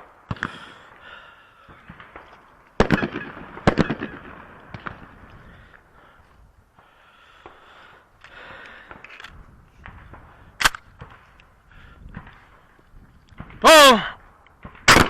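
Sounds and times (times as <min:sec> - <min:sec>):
shotgun shots with echoes: 0:01.7 - 0:05.2, 0:14.6 - 0:15.0
sharp crack: 0:12.1 - 0:15.0.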